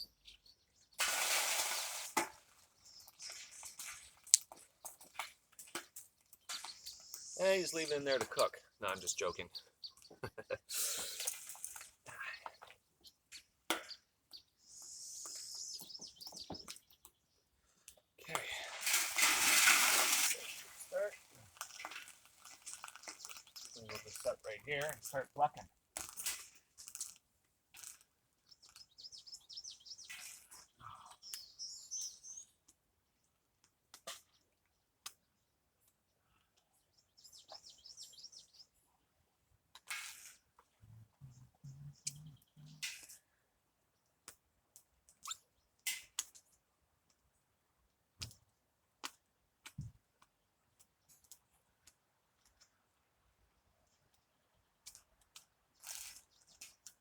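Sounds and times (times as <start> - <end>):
small bird chirping: 0.0 - 1.0, 2.6 - 17.6, 20.4 - 25.5, 28.4 - 32.7, 36.8 - 38.8, 40.8 - 43.2, 45.2 - 45.6.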